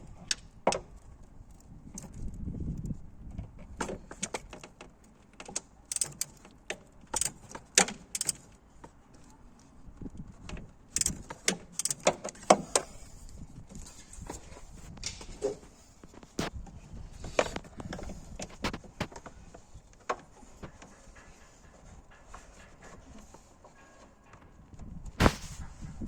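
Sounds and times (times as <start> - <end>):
metallic clicks of hand tools: 5.4 - 8.6, 11.0 - 12.9.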